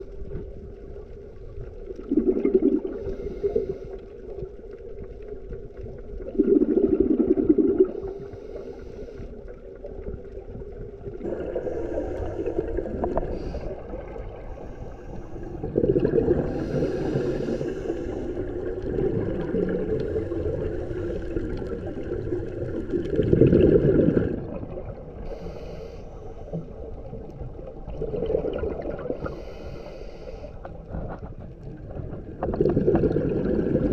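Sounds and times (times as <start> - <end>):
exhaled bubbles bursting: 1.8 - 3.2, 5.9 - 8.2, 9.9 - 14.6, 15.4 - 25.3, 26.7 - 29.3, 31.7 - 33.9
diver breathing through regulator: 2.8 - 4.2, 7.8 - 9.6, 11.3 - 19.0, 25.2 - 26.8, 29.0 - 30.9.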